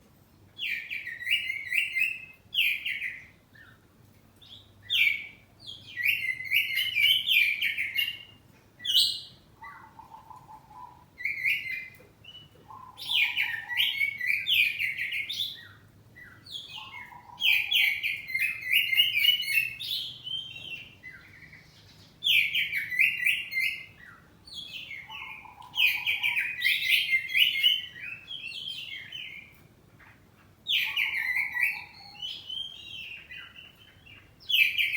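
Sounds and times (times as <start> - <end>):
bird singing whistled phrases: 22.3 - 29.5, 30.7 - 33.5.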